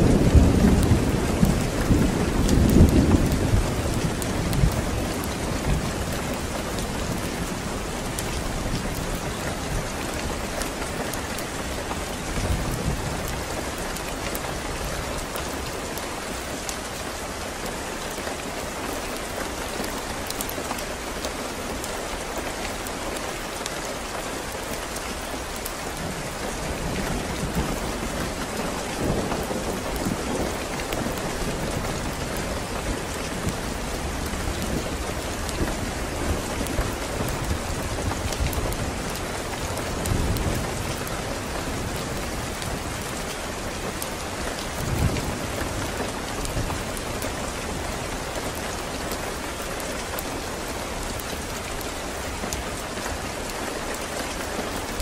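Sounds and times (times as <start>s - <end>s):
thunder rumbling: 0.0s - 10.2s
steady rain: 0.0s - 55.0s.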